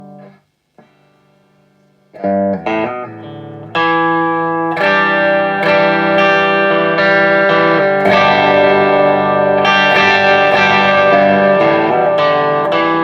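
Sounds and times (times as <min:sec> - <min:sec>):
electric guitar notes and chords: 0:00.0 - 0:13.0.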